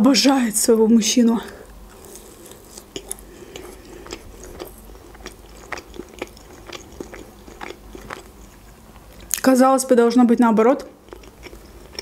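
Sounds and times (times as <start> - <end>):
person chewing crunchy food: 1.5 - 9.4, 10.9 - 12.0.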